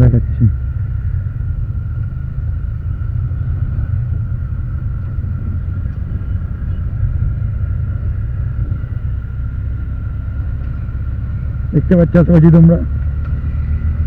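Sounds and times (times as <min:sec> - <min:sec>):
motorcycle engine rumble: 0:00.0 - 0:14.0
wind buffeting microphone: 0:00.6 - 0:11.7.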